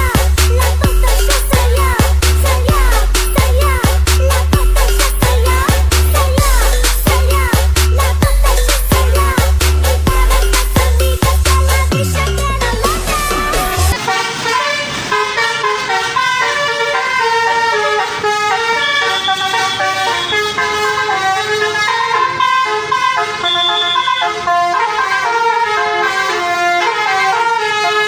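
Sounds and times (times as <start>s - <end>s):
musical bus horn melody: 0.0s - 28.0s.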